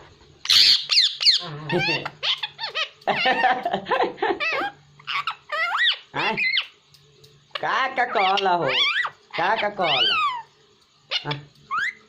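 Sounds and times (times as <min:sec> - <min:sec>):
parrot screech: 0:00.5 - 0:02.9, 0:04.4 - 0:06.7, 0:08.1 - 0:10.5
parrot chattering: 0:00.5 - 0:03.7, 0:04.4 - 0:06.8, 0:07.5 - 0:10.5, 0:11.1 - 0:12.0.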